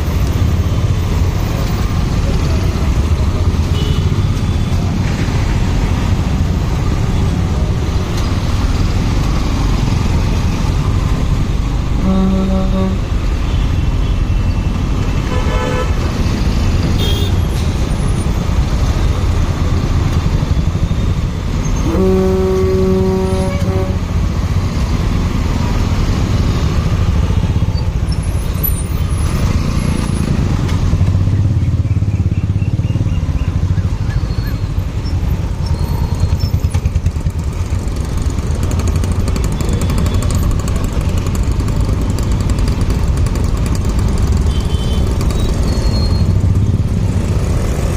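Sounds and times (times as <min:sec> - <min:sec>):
motorcycle engine and road noise: 0:00.0 - 0:47.9
long horn blast: 0:11.8 - 0:13.3, 0:15.3 - 0:16.0, 0:21.8 - 0:24.2.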